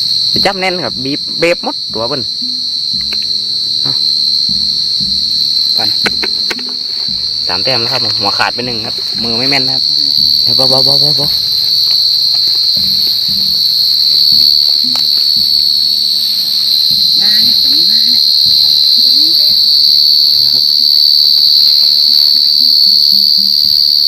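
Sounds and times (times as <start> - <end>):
cricket trilling: 0.0 - 24.0.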